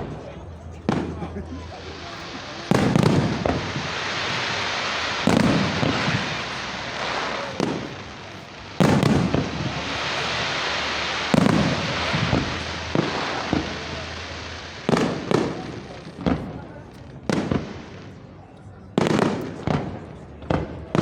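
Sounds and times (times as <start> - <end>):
steady hiss: 0.7 - 18.2
firework shells booming: 0.8 - 16.5
small firework cracks: 0.8 - 18.3, 19.0 - 21.0.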